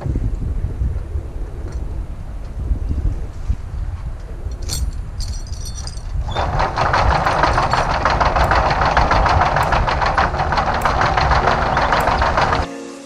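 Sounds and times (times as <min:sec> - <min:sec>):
low rumble: 0:00.0 - 0:12.6
engine clattering: 0:05.2 - 0:12.7.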